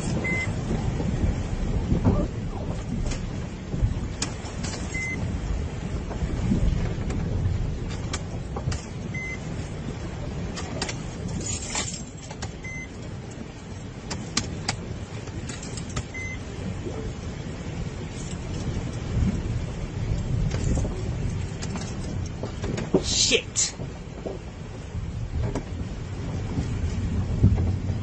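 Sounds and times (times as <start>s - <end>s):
vehicle engine rumbling: 0.0s - 28.0s
short beeps: 0.2s - 0.5s, 4.9s - 5.2s, 9.2s - 9.4s, 12.6s - 12.9s, 16.1s - 16.4s.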